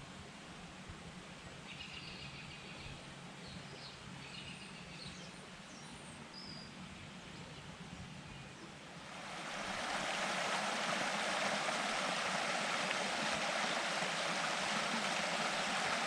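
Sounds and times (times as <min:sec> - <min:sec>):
faint background hiss: 0:00.0 - 0:16.0
birds chirping: 0:09.3 - 0:16.0.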